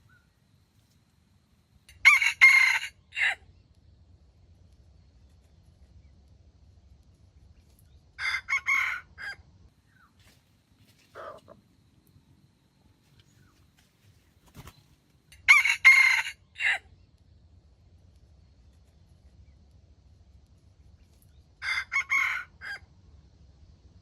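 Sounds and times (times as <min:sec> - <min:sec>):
rooster crowing: 0:01.9 - 0:03.4, 0:08.2 - 0:09.4, 0:15.4 - 0:16.8, 0:21.6 - 0:22.9.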